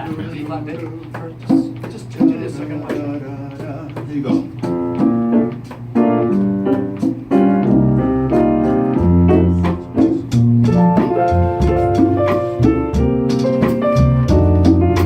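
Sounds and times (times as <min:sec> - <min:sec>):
slow piano ballad: 0:04.4 - 0:15.0.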